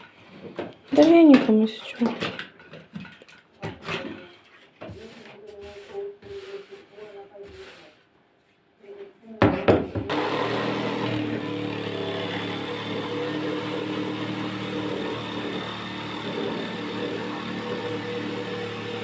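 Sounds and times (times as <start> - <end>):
power tool cutting wood: 10.1 - 19.0.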